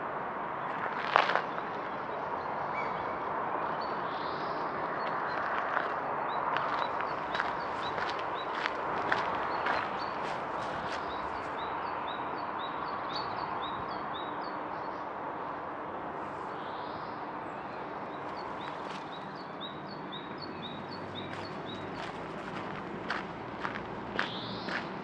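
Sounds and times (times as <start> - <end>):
footsteps: 6.6 - 11.6, 21.3 - 25.0.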